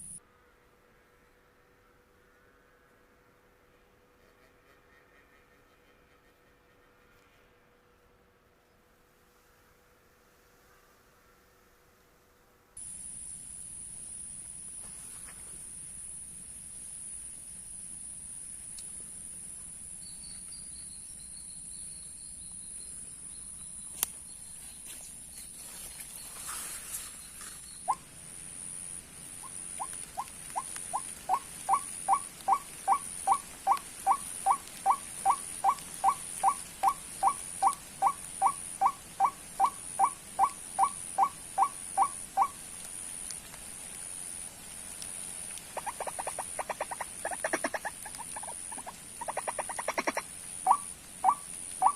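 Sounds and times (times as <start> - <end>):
high-pitched insect drone: 0.0 - 0.2
bird croaking calls: 29.4 - 42.6, 45.7 - 51.9.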